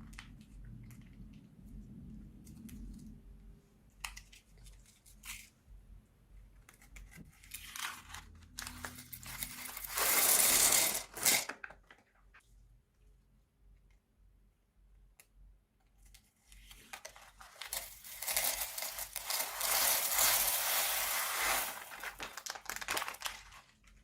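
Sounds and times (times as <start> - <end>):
plastic bag crinkling and tearing: 7.6 - 11.6, 17.2 - 24.0.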